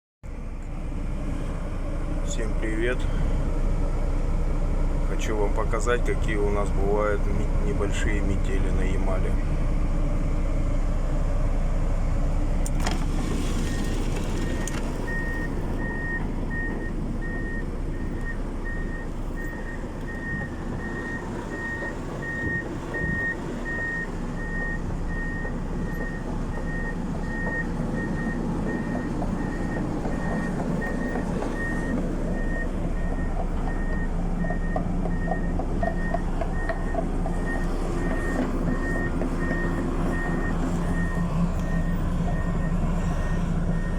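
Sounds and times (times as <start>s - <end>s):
vehicle reversing alarm beeping: 12.8s - 43.9s.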